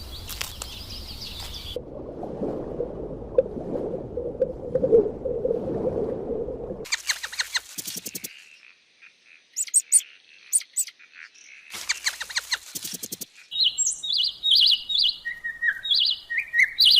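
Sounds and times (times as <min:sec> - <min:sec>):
songbirds chirping: 0:00.0 - 0:01.8, 0:07.0 - 0:16.9.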